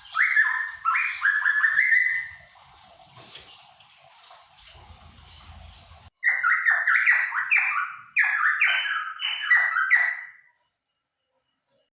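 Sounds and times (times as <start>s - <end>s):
songbird singing downward phrases: 0.0s - 2.4s, 6.2s - 10.5s.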